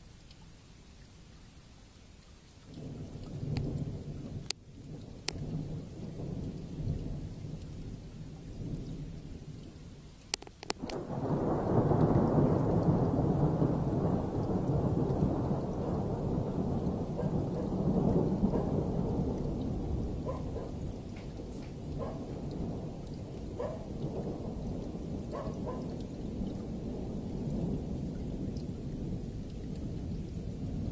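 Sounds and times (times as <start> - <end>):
steady rain: 0.0 - 30.9
sharp thunder cracks: 10.8 - 30.9
thunder rolling: 10.8 - 30.9.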